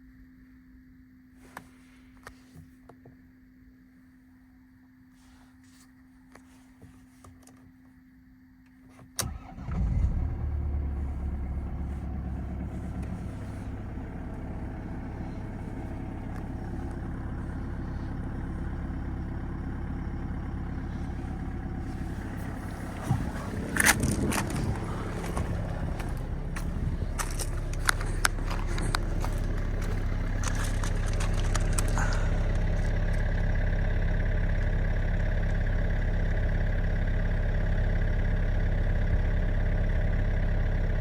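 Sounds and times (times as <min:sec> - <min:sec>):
faint steady hum: 0:00.0 - 0:38.0
diesel engine starting and idling: 0:09.2 - 0:41.0
clicks: 0:21.4 - 0:33.3.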